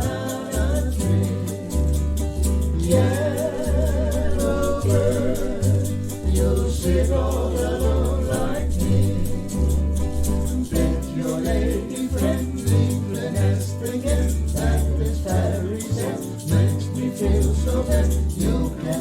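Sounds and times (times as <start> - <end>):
person singing: 0.0 - 2.0, 2.7 - 19.0
bass line: 0.0 - 19.0
light percussion rhythm: 0.0 - 19.0.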